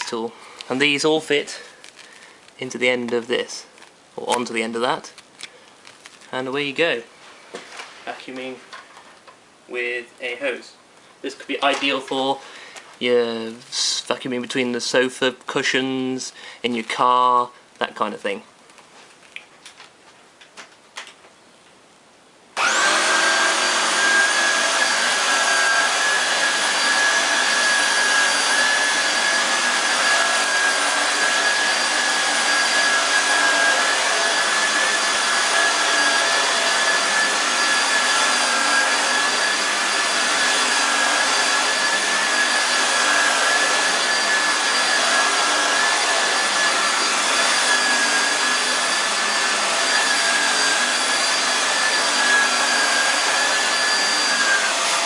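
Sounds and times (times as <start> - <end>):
vacuum cleaner motor whining: 22.6 - 55.0.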